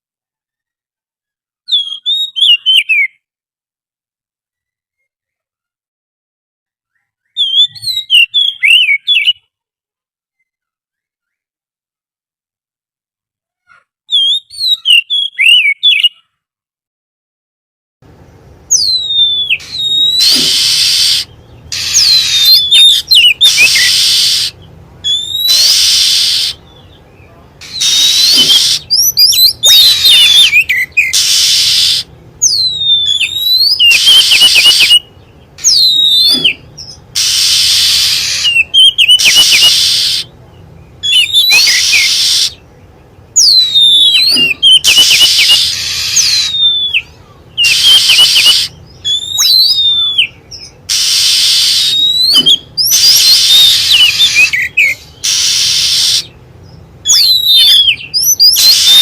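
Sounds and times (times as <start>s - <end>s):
bird whistled phrases: 1.7s - 3.2s, 6.9s - 9.5s, 14.1s - 16.4s, 18.7s - 42.7s, 43.4s - 56.4s, 57.0s - 59.0s.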